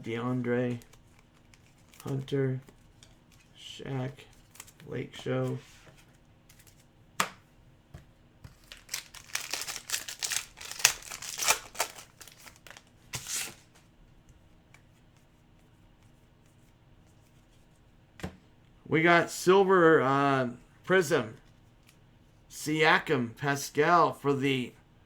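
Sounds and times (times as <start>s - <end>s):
plastic wrapper crackling: 8.5s - 13.6s.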